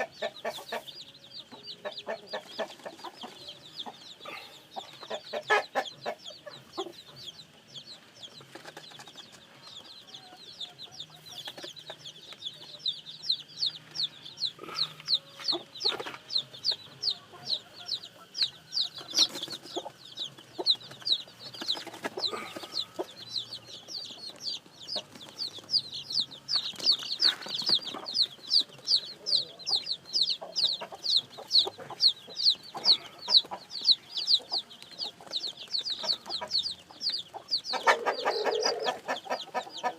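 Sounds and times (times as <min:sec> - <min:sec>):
low clucking calls: 0:00.0 - 0:00.9, 0:01.7 - 0:07.0, 0:18.9 - 0:23.2, 0:29.1 - 0:39.9
chicks peeping: 0:00.0 - 0:39.9.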